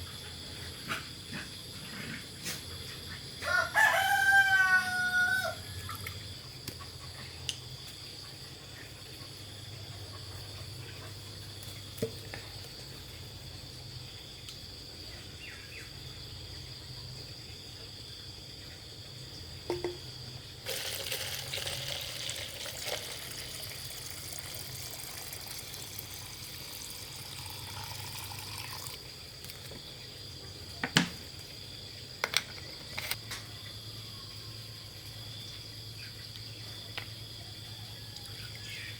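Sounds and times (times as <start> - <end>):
insect chirring: 18.0 - 38.9.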